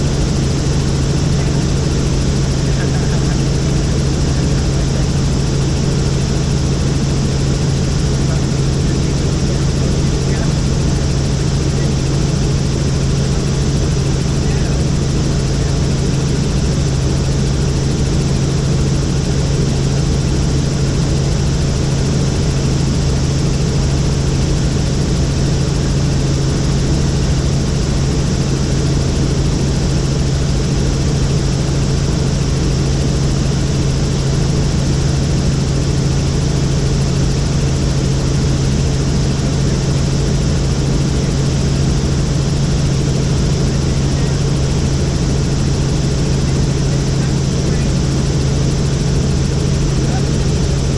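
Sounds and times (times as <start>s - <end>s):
helicopter rotor and engine drone: 0.0s - 50.9s.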